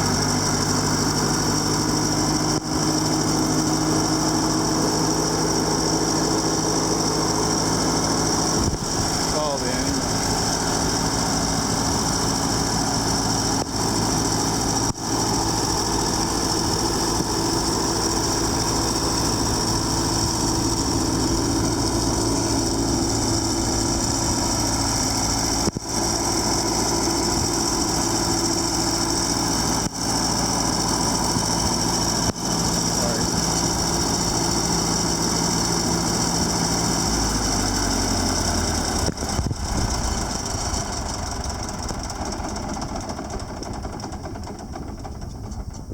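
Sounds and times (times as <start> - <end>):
engine running: 0.0 - 45.9.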